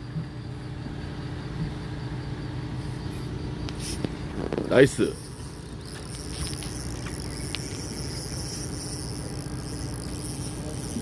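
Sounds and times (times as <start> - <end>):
boat engine humming: 0.0 - 11.0
faint ticks: 3.1 - 11.0.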